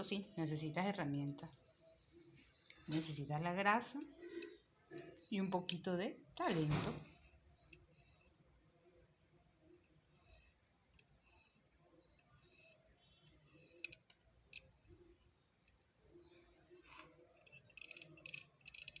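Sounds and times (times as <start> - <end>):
faint bird chirps: 0.0 - 5.6, 6.6 - 19.0.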